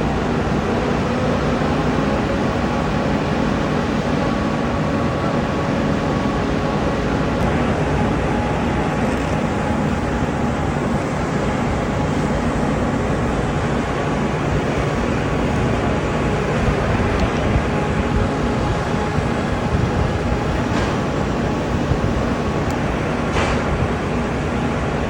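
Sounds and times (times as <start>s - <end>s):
heavy machinery rumble: 0.0s - 25.0s.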